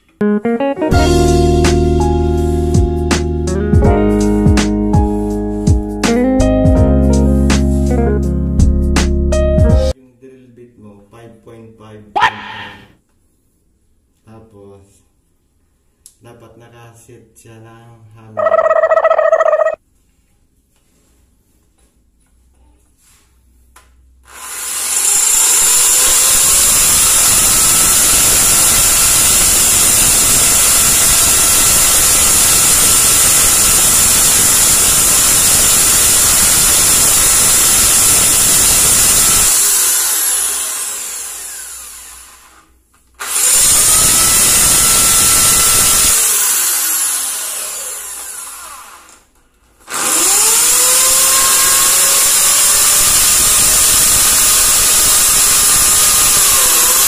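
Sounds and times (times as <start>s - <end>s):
electric drill boring into tile: 24.3s - 49.3s, 49.9s - 57.0s.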